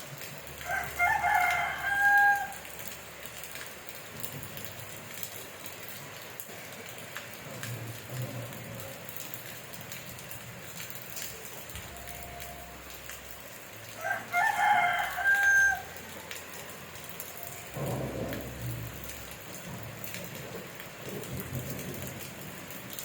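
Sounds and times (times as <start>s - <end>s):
rain falling: 0.0s - 23.0s
rooster crowing: 0.6s - 2.6s, 13.9s - 16.1s.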